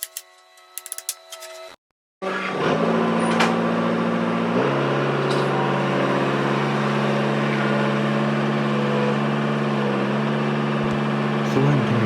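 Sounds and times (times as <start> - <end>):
tractor diesel engine idling: 11.2 - 12.0.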